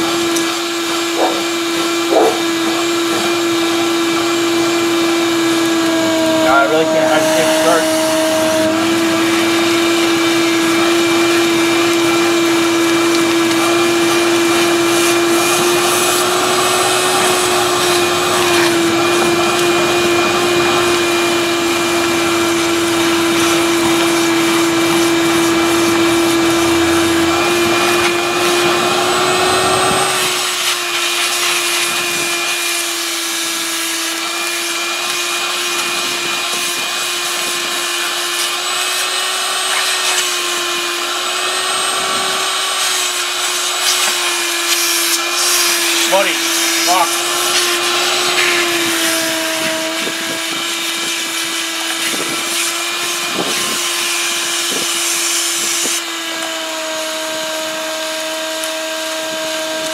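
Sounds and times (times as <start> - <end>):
shop vacuum motor whine: 0.0 - 59.9
vacuum nozzle sucking dirt: 0.0 - 59.9.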